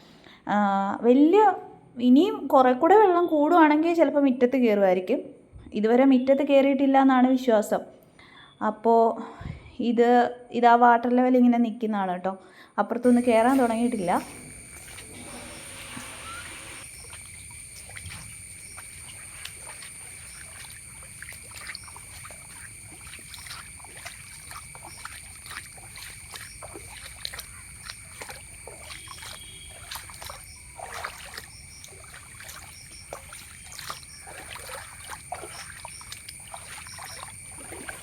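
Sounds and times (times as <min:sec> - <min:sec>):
insects droning: 0:13.0 - 0:38.0
water drips and splashes: 0:13.1 - 0:38.0.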